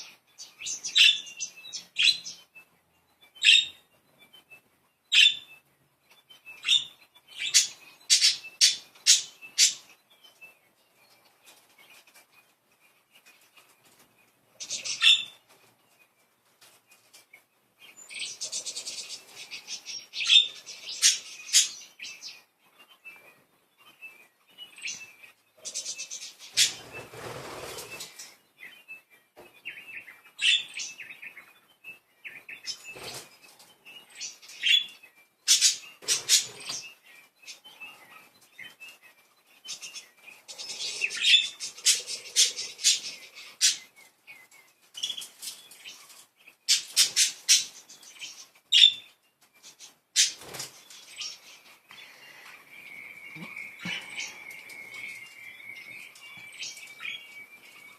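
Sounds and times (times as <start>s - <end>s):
budgerigars chirping: 6.6s - 10.0s, 14.6s - 15.4s, 18.1s - 22.4s, 24.8s - 28.3s, 34.2s - 38.3s, 39.7s - 44.0s.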